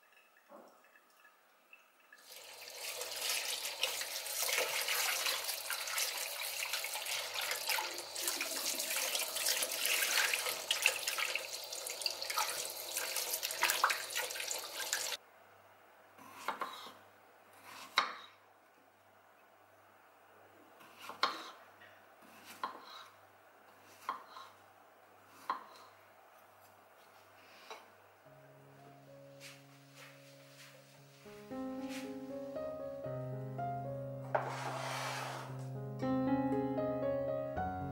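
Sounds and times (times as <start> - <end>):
kitchen tap running into a bowl: 0.0 - 15.2
strawberries rubbed by hand: 34.4 - 35.6.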